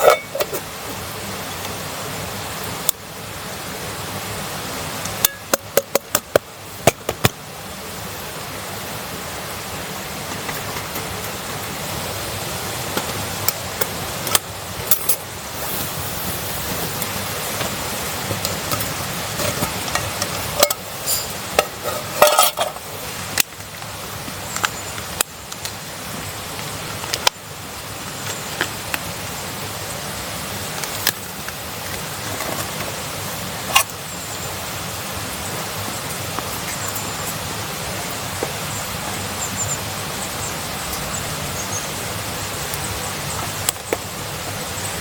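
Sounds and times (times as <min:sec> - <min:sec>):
utensil clinking on metal pan: 0:00.0 - 0:00.6, 0:18.3 - 0:22.8
food sizzling in a pan: 0:09.6 - 0:25.0.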